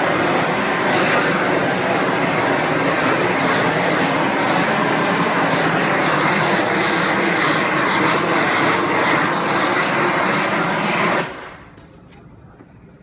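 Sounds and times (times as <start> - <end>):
propane heat gun burner rushing: 0.0 - 11.7.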